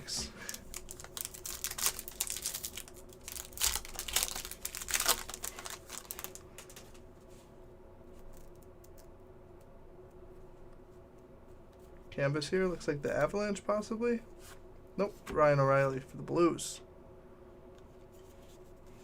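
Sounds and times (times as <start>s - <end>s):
faint steady hum: 0.0s - 19.0s
wrapper crinkling: 0.4s - 7.0s.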